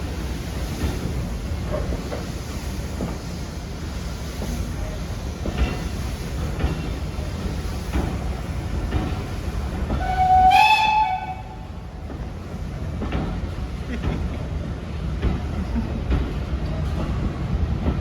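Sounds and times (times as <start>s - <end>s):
train rumbling: 0.0s - 18.0s
train horn blast: 10.0s - 11.7s.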